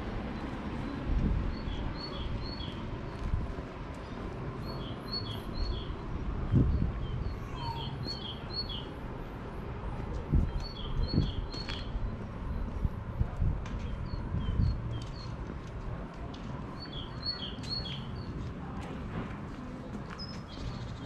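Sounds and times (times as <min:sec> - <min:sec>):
footsteps on cobblestones: 0:00.0 - 0:06.4, 0:09.0 - 0:21.0.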